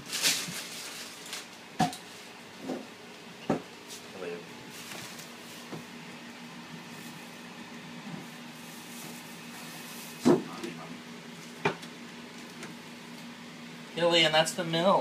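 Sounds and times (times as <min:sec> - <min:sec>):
refrigerator low hum: 0:00.0 - 0:15.0
sharp knocks in refrigerator: 0:03.5 - 0:03.7, 0:10.2 - 0:10.5.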